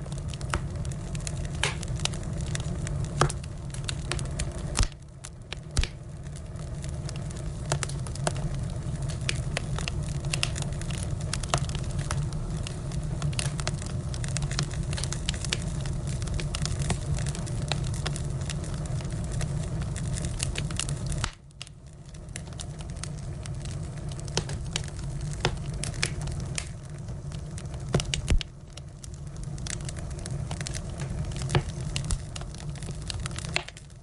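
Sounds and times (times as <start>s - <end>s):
firewood crackling and popping: 0.0s - 34.0s
low fire rumble: 0.0s - 34.0s
wood snapping: 1.5s - 2.1s, 3.1s - 3.4s, 4.1s - 5.0s, 5.7s - 6.0s, 24.3s - 26.7s, 30.6s - 32.2s.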